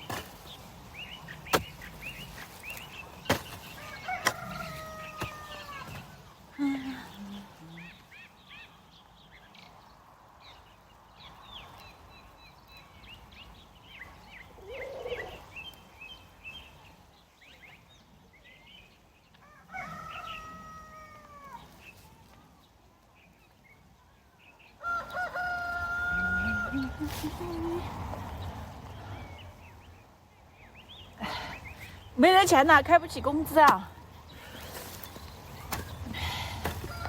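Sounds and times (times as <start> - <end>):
rooster crowing: 3.8 - 6.0, 19.4 - 21.6, 24.8 - 27.1.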